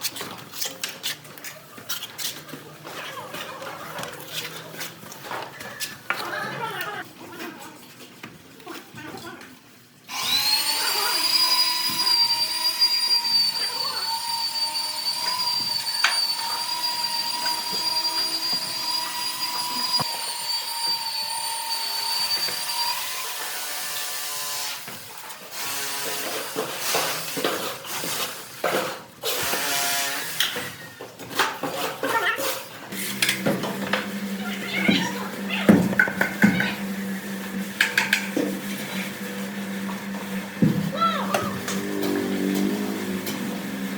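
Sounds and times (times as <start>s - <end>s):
electric motor whining: 10.1s - 23.1s, 33.0s - 43.9s.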